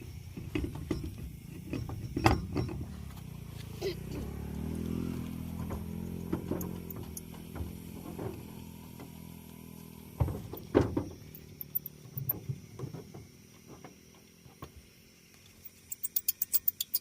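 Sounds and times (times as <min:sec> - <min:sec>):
small clicks and knocks: 0:00.3 - 0:03.3, 0:05.2 - 0:09.2, 0:10.2 - 0:14.8, 0:15.4 - 0:17.0
sharp ticks: 0:15.4 - 0:17.0.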